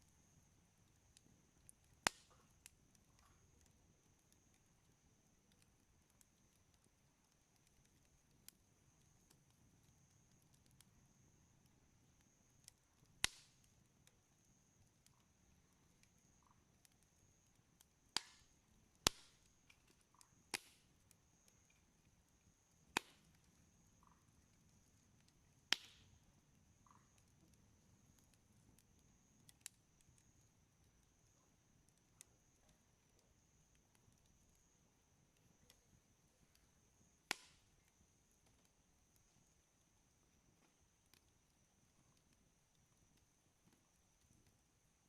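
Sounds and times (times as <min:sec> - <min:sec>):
campfire wood crackling: 0:00.0 - 0:45.0
loud sharp pops: 0:19.1 - 0:19.4, 0:37.3 - 0:37.6.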